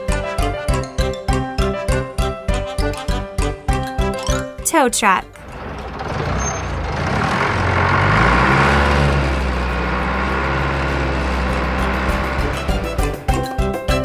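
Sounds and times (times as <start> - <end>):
truck engine droning: 5.3 - 13.4.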